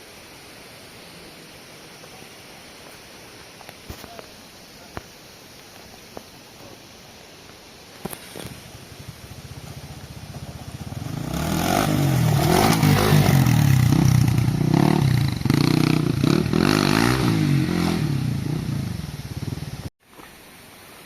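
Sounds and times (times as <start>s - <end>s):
motorcycle engine revving hard: 9.0s - 19.9s.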